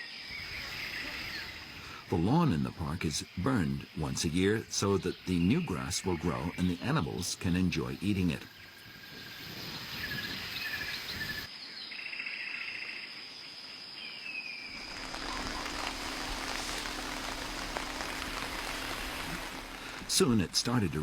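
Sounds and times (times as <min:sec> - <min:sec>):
heavy rain hissing: 0:00.3 - 0:03.4, 0:14.7 - 0:21.0
insect buzzing trill: 0:14.7 - 0:21.0.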